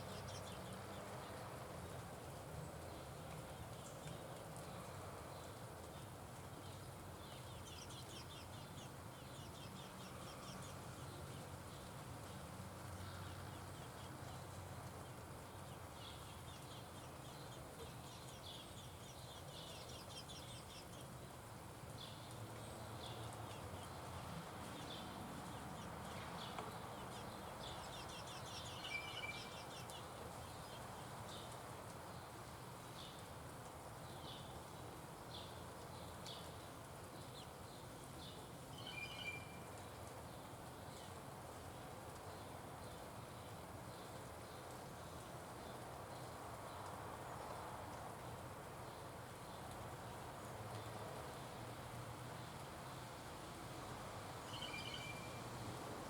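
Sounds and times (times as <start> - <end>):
small birds chirping and trilling: 0.0 - 1.5, 2.6 - 33.3, 34.0 - 41.3
faint outdoor background: 0.0 - 56.0.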